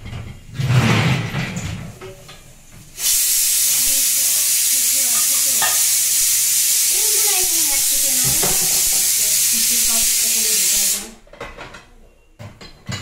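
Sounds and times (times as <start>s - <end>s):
food sizzling in hot oil: 2.6s - 11.2s.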